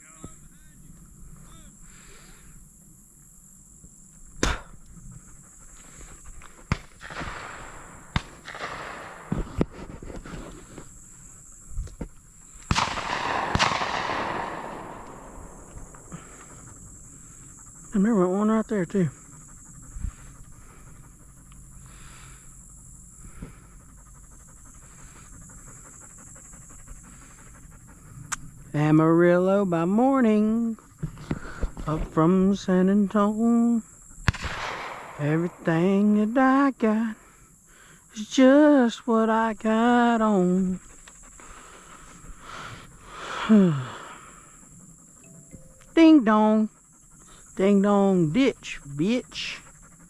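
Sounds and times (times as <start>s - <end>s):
insects buzzing: 0.0s - 50.0s
dog panting: 4.1s - 34.2s, 35.2s - 50.0s
shotgun shots: 6.7s - 9.6s, 12.7s - 15.9s, 34.2s - 35.6s.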